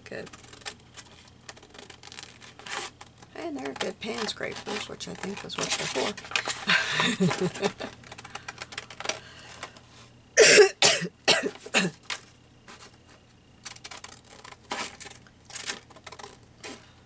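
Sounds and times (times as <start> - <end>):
woman coughing: 10.4 - 12.0.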